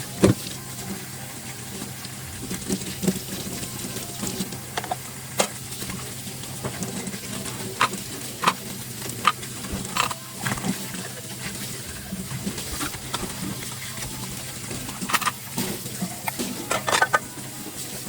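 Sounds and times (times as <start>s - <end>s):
dishes and utensils clinking: 6.7s - 18.0s.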